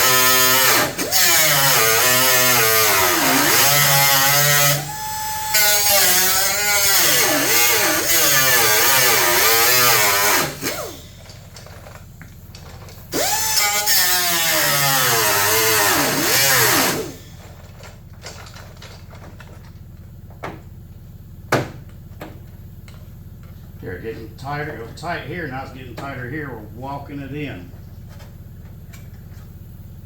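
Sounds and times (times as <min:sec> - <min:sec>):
power grinder on sheet metal: 0:00.0 - 0:11.1, 0:13.1 - 0:17.5.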